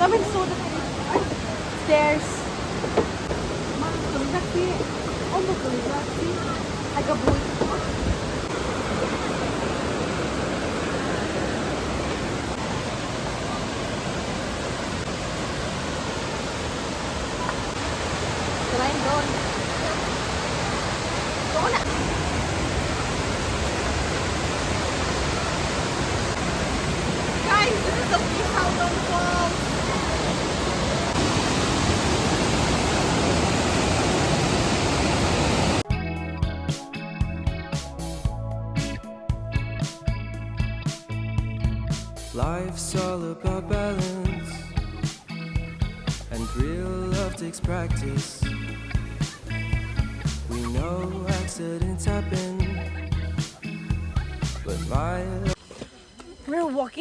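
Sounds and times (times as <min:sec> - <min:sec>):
waterfall rushing: 0:00.0 - 0:35.9, 0:44.0 - 0:55.6
guitar background music: 0:35.8 - 0:56.9.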